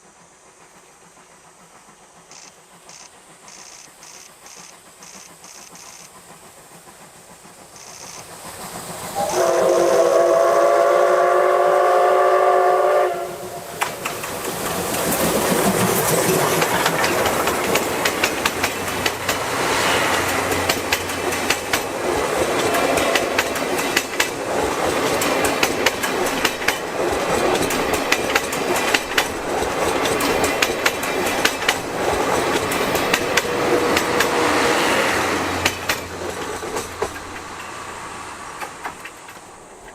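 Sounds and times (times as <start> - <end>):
steam locomotive exhaust chuffing: 0.0 - 39.9
steam whistle blast: 9.1 - 13.7
wheels clattering over rail joints: 13.6 - 34.5, 35.5 - 39.9.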